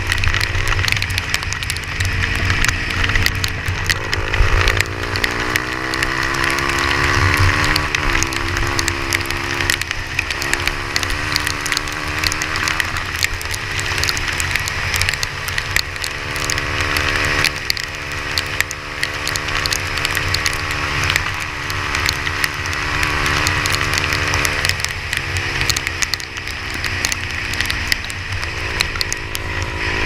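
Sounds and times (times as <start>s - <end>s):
engine running: 0.0s - 30.0s
rain falling: 0.0s - 30.0s.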